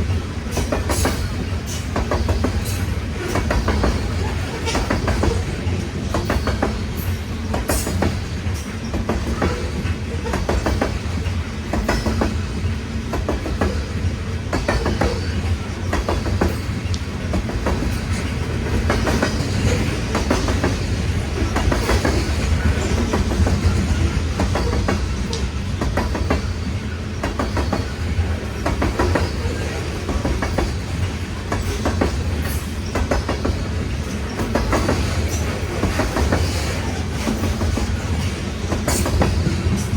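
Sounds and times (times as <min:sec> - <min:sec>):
steel wheels clacking on rails: 0:00.0 - 0:39.9
train cars rumbling: 0:00.0 - 0:39.9.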